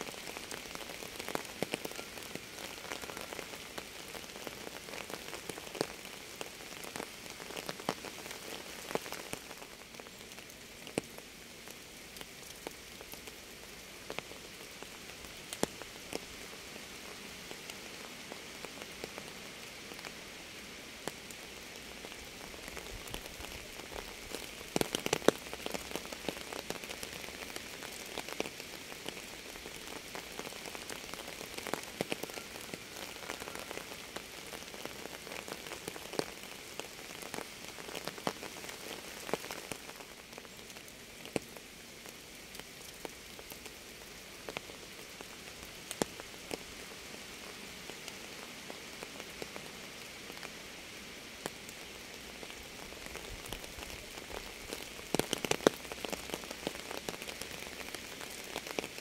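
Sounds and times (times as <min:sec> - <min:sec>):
raindrops tapping on a surface: 0:00.0 - 0:13.4, 0:14.0 - 0:16.3, 0:22.0 - 0:43.8, 0:44.4 - 0:46.6, 0:52.4 - 0:59.0.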